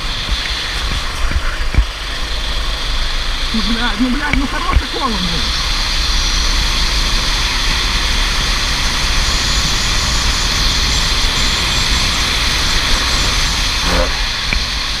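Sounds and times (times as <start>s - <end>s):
kart engine at speed: 0.0s - 15.0s
wind rush: 0.0s - 15.0s.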